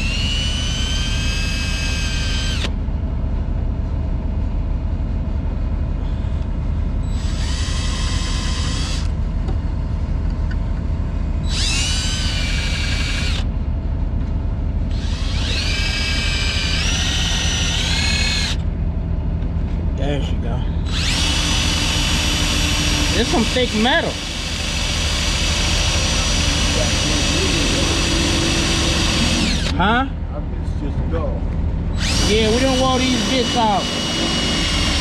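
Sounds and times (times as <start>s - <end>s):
cordless drill drilling into metal: 0.0s - 2.7s, 7.1s - 9.2s, 11.5s - 13.5s, 14.9s - 18.6s, 20.9s - 29.9s, 32.0s - 35.0s
low rumble: 0.1s - 8.1s, 8.8s - 23.2s.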